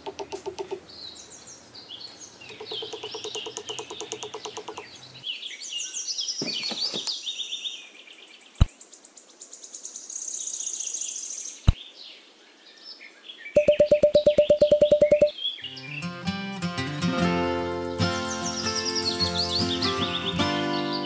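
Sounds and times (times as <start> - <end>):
sharp clicks: 0.0 - 0.9, 2.4 - 5.0, 13.6 - 15.3
songbirds chirping: 0.0 - 16.3, 17.8 - 21.0.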